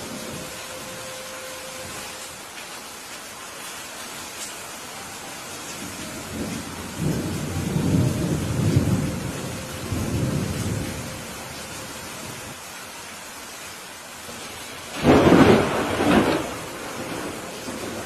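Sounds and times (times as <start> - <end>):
steady rain: 0.0 - 18.0
thunder rumbling: 5.6 - 12.6, 14.9 - 18.0.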